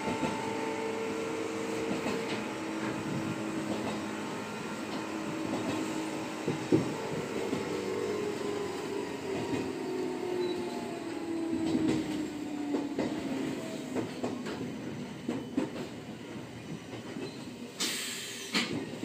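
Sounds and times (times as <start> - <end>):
short hiss: 17.8 - 18.6.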